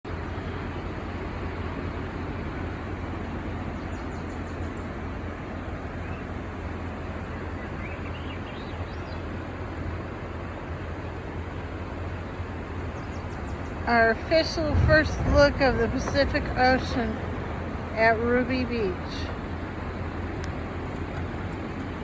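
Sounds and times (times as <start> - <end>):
ocean surf: 0.0 - 7.9, 9.2 - 22.0
bird chirps: 7.4 - 9.3.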